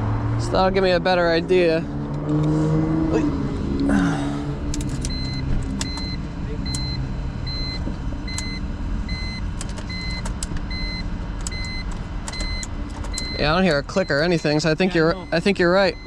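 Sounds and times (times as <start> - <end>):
electronic warning chime beeping: 5.1 - 16.0.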